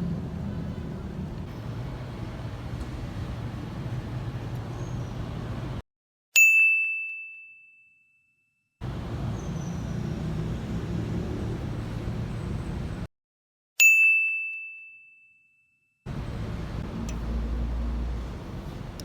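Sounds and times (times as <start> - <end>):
bell-like ding: 6.4 - 8.6, 13.8 - 15.9.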